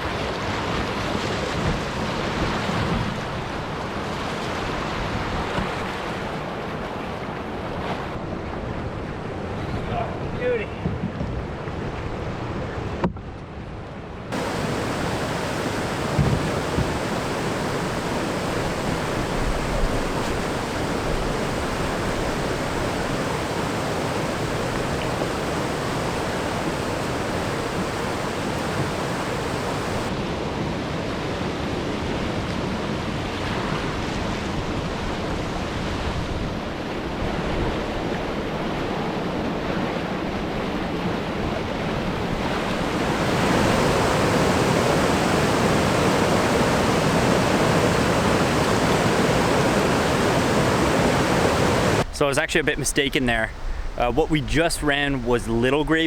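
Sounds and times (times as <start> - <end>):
rushing whitewater: 14.3 - 30.9, 32.8 - 56.0.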